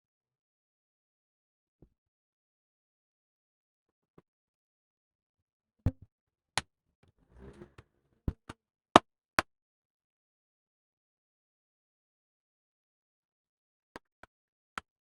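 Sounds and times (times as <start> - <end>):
faint scraping rustle: 7.2 - 8.2.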